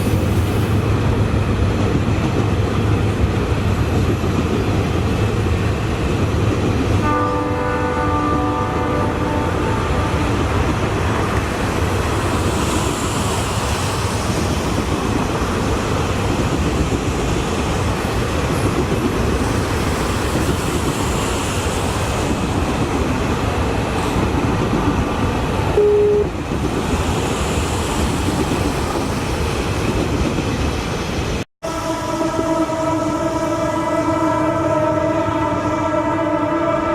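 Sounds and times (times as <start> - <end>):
train wheels rumbling on track: 0.0 - 36.8
chord horn sounding: 7.0 - 10.4, 25.8 - 26.3, 31.6 - 36.9
train horn toot: 7.0 - 10.6, 25.8 - 26.3, 31.6 - 36.9.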